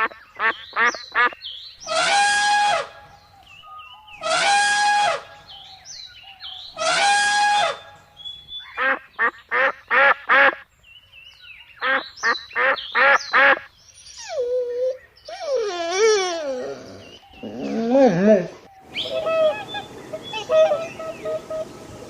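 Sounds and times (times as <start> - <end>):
waterfowl honking: 0.0 - 3.0, 4.2 - 5.5, 6.7 - 8.0, 8.7 - 10.6, 18.8 - 22.0
faint high bird chirps: 18.7 - 22.0.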